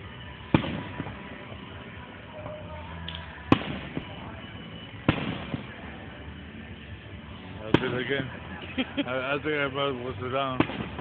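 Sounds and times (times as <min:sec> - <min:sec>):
fainter echo bang: 0:07.7 - 0:08.3
firework shells bursting: 0:10.6 - 0:11.0.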